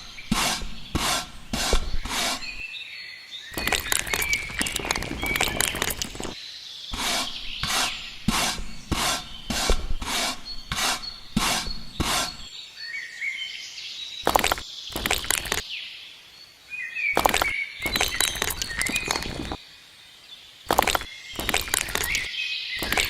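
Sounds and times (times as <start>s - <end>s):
rough scraping strokes by hand: 0.0s - 2.6s, 3.6s - 12.5s, 14.3s - 15.6s, 17.2s - 19.6s, 20.7s - 23.0s.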